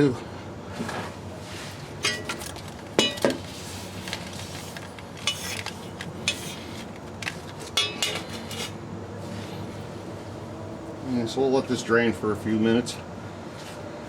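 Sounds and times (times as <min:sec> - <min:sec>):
tools clinking on steel pan: 0:02.0 - 0:03.4, 0:05.3 - 0:05.7, 0:07.8 - 0:08.6.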